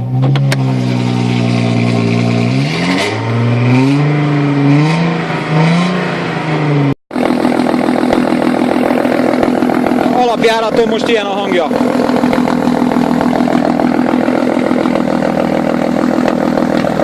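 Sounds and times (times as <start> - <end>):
car engine revving: 0.0 - 17.0
engine idling with crackly exhaust: 7.1 - 17.0.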